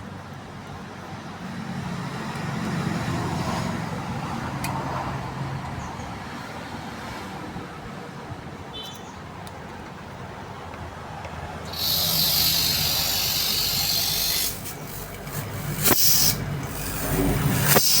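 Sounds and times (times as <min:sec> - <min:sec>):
sharp click: 0:11.6 - 0:18.0
air hissing: 0:11.7 - 0:18.0
refrigerator compressor humming: 0:11.7 - 0:18.0.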